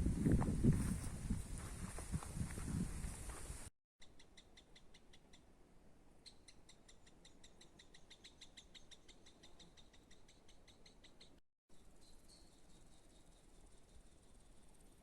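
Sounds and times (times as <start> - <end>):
footsteps on forest path: 0.0 - 3.7.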